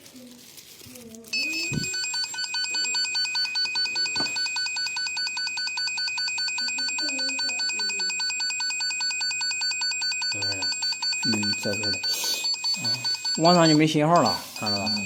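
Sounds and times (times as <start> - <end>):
pulsing electronic alert tone: 10.2 - 15.0.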